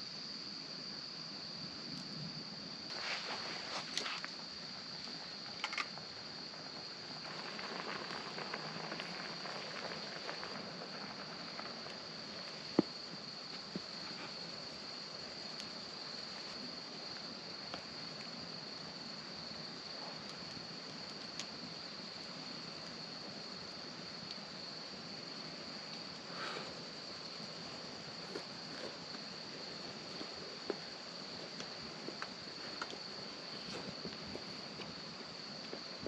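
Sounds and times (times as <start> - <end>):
crickets chirping: 0.0 - 36.0
small clicks and knocks: 5.5 - 5.9.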